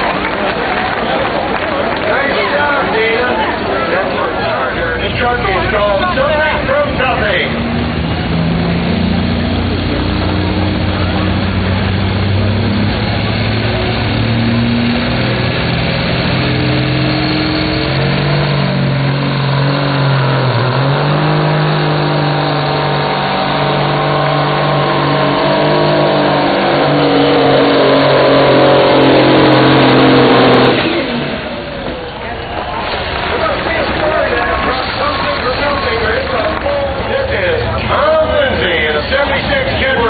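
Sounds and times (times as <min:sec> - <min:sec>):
truck diesel engine pulling hard: 0:00.0 - 0:40.0.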